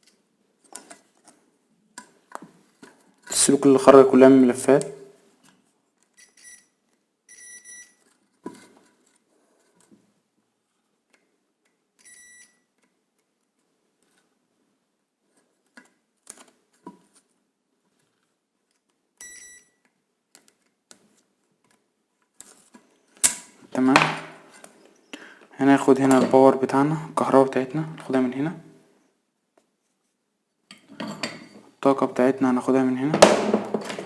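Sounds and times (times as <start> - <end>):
multimeter continuity beeps: 7.3 - 8.0, 19.2 - 19.7.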